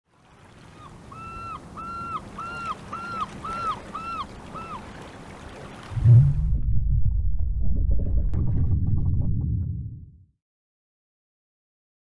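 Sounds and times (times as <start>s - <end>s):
steady low rumble: 5.9s - 10.2s.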